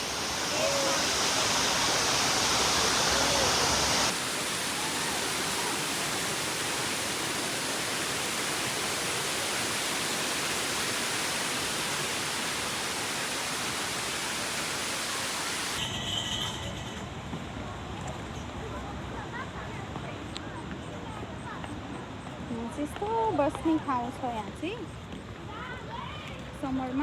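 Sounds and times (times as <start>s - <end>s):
water rushing down a waterfall: 0.0s - 15.8s.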